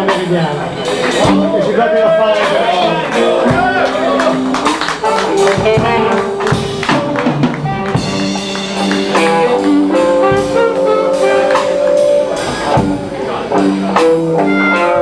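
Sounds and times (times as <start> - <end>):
blues band playing live: 0.0 - 15.0
drums: 0.0 - 15.0
electric guitar: 0.0 - 15.0.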